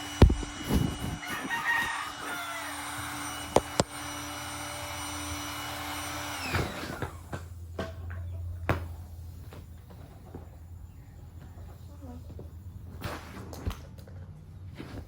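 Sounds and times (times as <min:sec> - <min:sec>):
electric air pump whining: 0:00.0 - 0:07.7.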